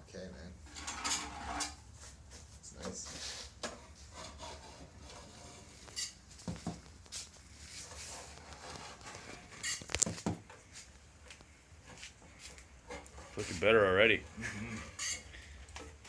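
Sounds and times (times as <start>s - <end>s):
paint scraping strokes: 0.8s - 6.4s, 7.1s - 9.9s, 10.6s - 16.0s.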